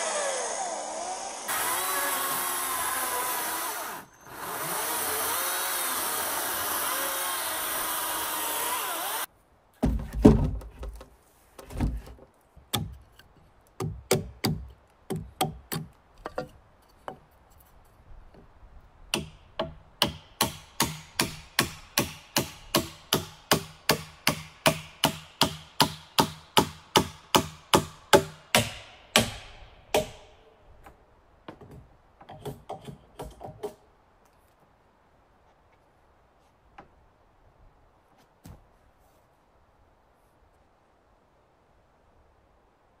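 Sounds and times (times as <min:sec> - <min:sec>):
hammer striking wood: 0:19.1 - 0:30.4.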